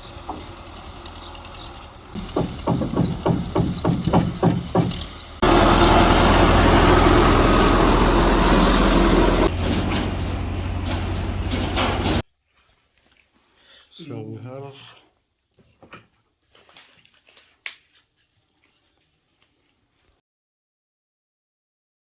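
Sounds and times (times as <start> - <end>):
evenly spaced knocking: 2.2 - 5.1.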